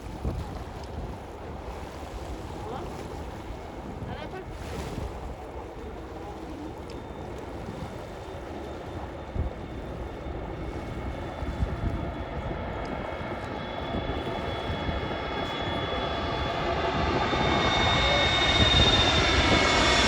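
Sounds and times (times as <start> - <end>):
wind rumble on microphone: 0.0 - 20.0
jet engine whine and rush: 0.2 - 20.0
high whining tones: 13.4 - 20.0.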